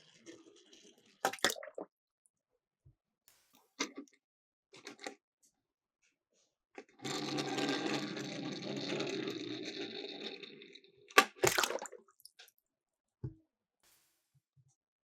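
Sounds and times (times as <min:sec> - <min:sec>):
toy cars rattling down plastic slope: 0:07.0 - 0:11.4
sharp impacts into water: 0:11.4 - 0:12.0.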